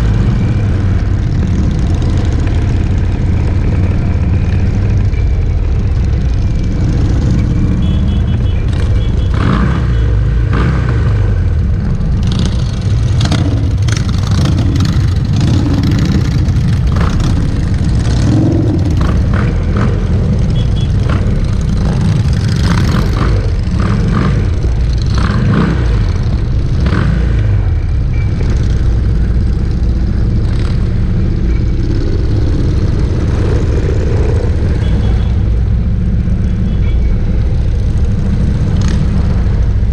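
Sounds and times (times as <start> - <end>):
motorcycle engines revving: 0.0 - 39.9
motorcycle engines running: 0.0 - 39.9.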